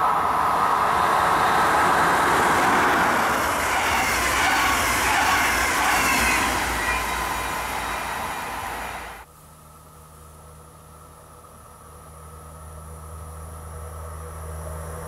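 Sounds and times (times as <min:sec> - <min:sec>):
train passing at speed: 0:00.0 - 0:09.3.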